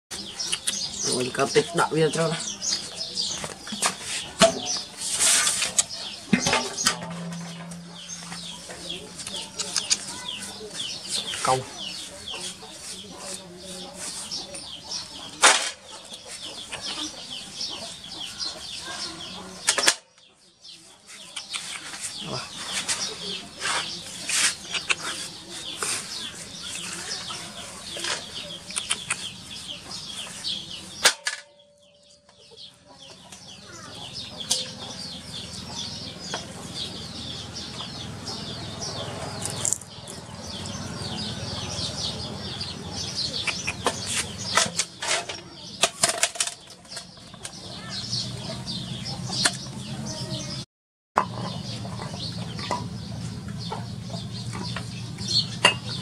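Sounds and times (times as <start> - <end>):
hands scraping larvae on tiled floor: 2.5 - 6.2, 20.6 - 31.0.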